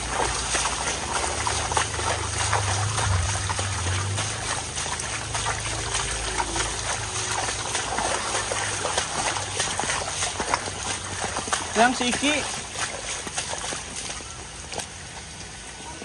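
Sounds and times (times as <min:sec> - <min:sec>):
low rumble: 0:00.0 - 0:08.9
bare feet splashing in water: 0:00.0 - 0:16.0
heavy rain: 0:00.0 - 0:16.0
runoff water trickling: 0:00.0 - 0:16.0.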